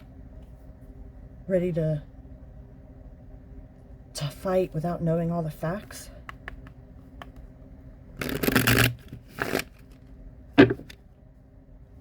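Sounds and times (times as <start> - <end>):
cards riffle shuffling: 8.2 - 9.9.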